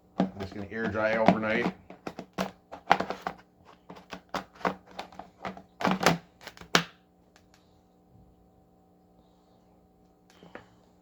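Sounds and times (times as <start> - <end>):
hard objects clicking and knocking: 0.2 - 6.9.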